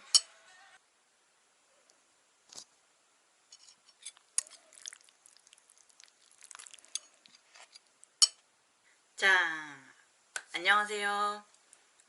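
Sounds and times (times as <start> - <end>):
small objects clicking and tapping: 6.5 - 8.4.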